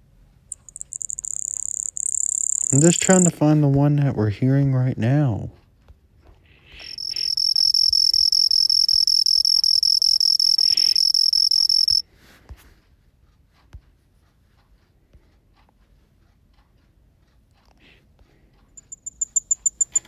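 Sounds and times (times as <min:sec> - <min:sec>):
faint clicks: 0:00.5 - 0:03.3, 0:18.8 - 0:20.0
cricket trilling: 0:00.5 - 0:03.4, 0:06.8 - 0:12.0, 0:18.8 - 0:20.0.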